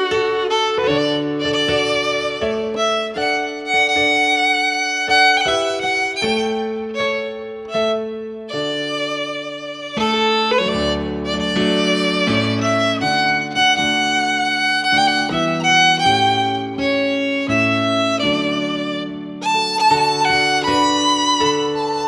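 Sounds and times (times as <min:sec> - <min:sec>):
violin slow melody: 0:00.0 - 0:22.0.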